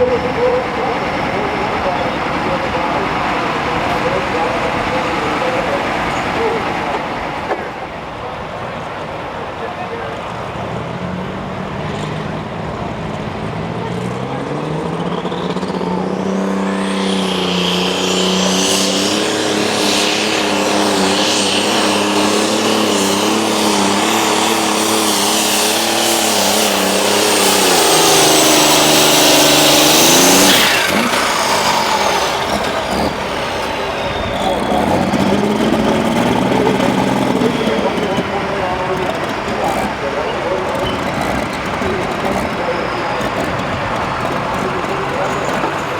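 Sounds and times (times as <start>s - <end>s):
diesel tractor engine at full throttle: 0.0s - 45.9s
turbo whistle: 15.3s - 45.9s.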